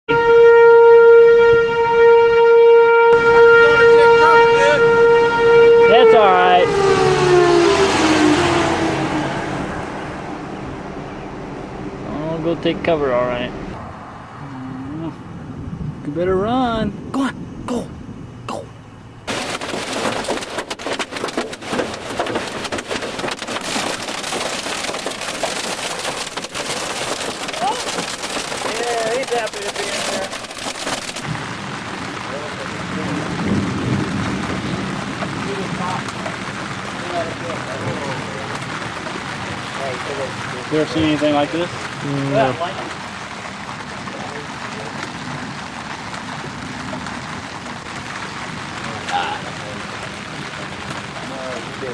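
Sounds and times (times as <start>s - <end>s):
warning siren steady tone: 0.1s - 12.0s
storm wind: 0.1s - 51.9s
dense crackling impacts: 0.2s - 13.8s, 19.2s - 51.9s
heavy rain: 0.3s - 15.6s, 19.2s - 51.9s.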